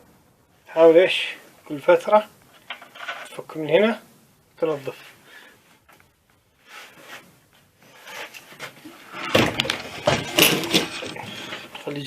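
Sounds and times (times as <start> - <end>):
knocks and clatter: 9.1 - 11.8.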